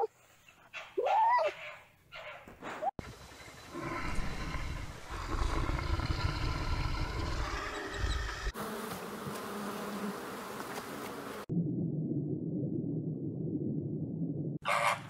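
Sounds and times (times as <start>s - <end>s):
flying insects buzzing: 3.0s - 11.5s
low wind rumble: 3.1s - 8.5s, 11.5s - 14.6s.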